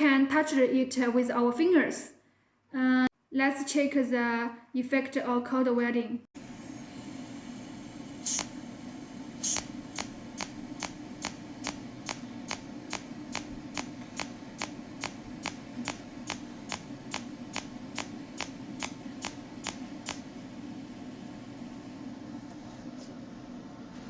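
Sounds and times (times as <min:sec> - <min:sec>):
steady low hum: 0:06.4 - 0:24.0
welder discharge snaps: 0:09.4 - 0:20.3.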